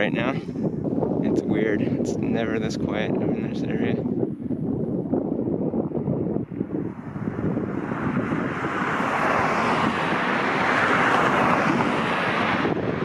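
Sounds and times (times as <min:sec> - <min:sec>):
vehicle passing on road: 0:05.1 - 0:13.0.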